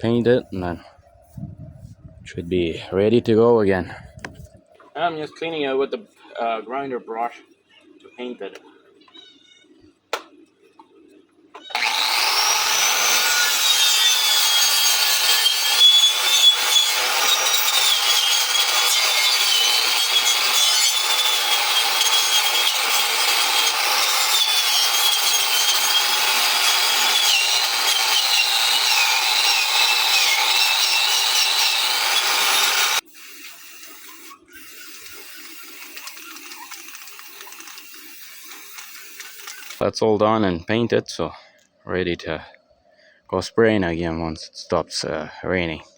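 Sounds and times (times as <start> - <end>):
angle grinder wire brush on steel: 11.7 - 39.8.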